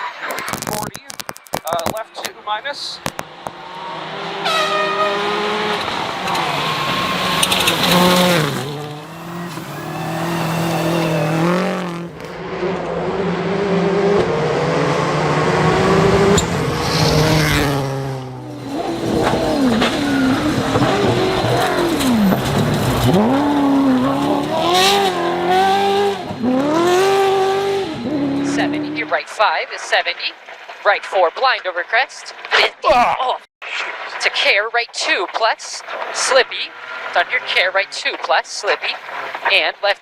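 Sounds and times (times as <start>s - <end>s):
rally car engine revving: 3.0s - 29.2s.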